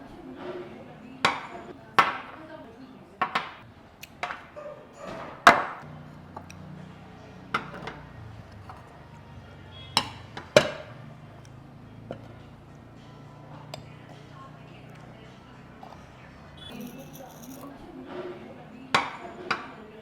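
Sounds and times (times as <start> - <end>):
utensils clinking on plates: 4.2 - 9.0, 14.9 - 20.0.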